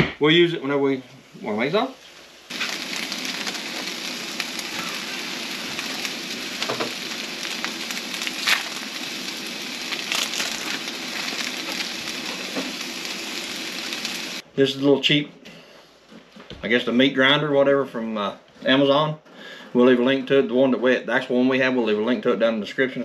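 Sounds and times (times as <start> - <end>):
burger patties sizzling in a pan: 1.2 - 14.4
fat popping and crackling: 2.5 - 14.4.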